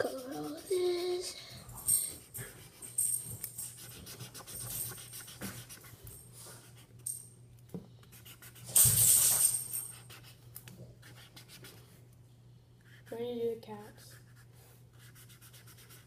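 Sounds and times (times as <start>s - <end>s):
marker scratching on paper: 0.0s - 1.3s, 2.2s - 2.9s, 3.7s - 6.0s, 8.1s - 8.6s, 9.9s - 10.4s, 11.0s - 11.8s, 12.8s - 16.0s.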